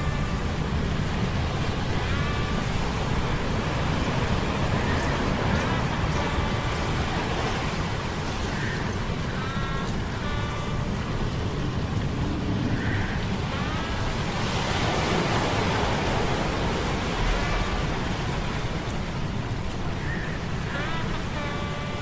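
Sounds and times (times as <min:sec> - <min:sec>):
rain: 0:00.0 - 0:22.0
wind: 0:00.0 - 0:22.0
faint pitched cries: 0:01.9 - 0:11.7, 0:12.8 - 0:14.7, 0:20.1 - 0:22.0.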